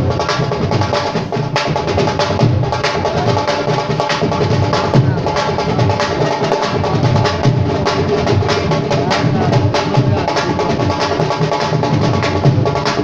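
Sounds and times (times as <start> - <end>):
fast hand drumming: 0.0 - 13.0
held melodic tone: 2.3 - 12.6.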